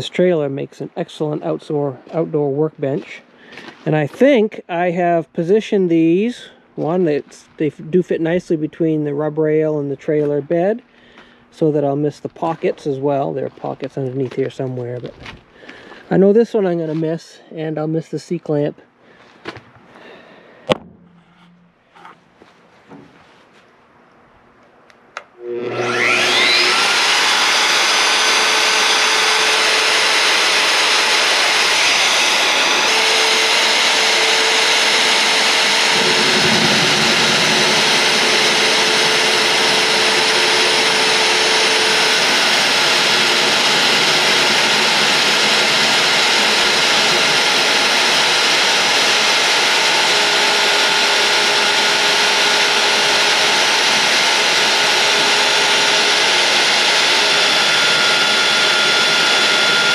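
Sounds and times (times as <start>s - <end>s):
drill cutting through steel: 25.4s - 59.9s
drill motor whine: 25.4s - 59.9s.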